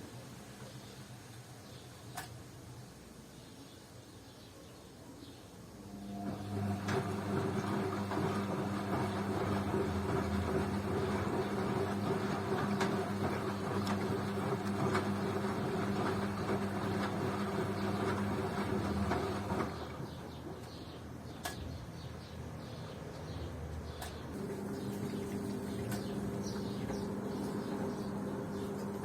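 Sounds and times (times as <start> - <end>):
washing machine motor hum: 5.8 - 20.7, 24.2 - 29.0
washing machine clicks: 24.0 - 29.0.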